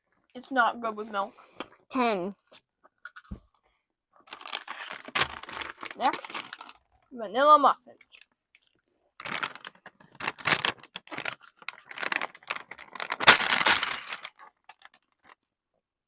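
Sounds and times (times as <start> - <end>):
plastic wrapper crinkling: 4.2 - 7.0, 8.0 - 15.4
plastic wrapper ripping: 4.3 - 6.9, 9.2 - 15.4.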